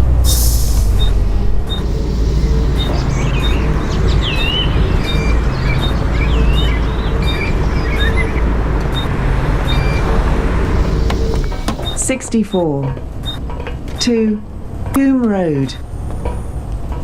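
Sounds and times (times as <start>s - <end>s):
bus diesel engine idling: 0.0s - 14.8s
short high electronic beeps: 0.2s - 8.4s, 9.0s - 10.1s
birds chirping: 0.7s - 12.8s.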